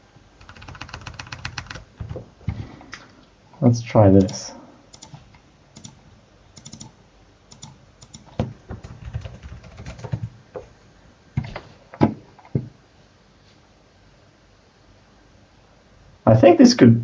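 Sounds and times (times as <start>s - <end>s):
typing on computer keyboard: 0.4s - 2.2s, 4.2s - 5.2s, 5.8s - 6.0s, 6.6s - 6.9s, 7.5s - 10.3s.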